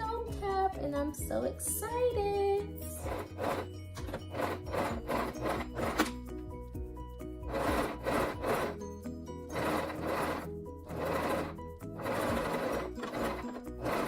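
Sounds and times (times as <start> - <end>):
background music: 0.0 - 14.0
electric sewing machine stitching: 3.0 - 6.2, 7.5 - 8.8, 9.5 - 14.0.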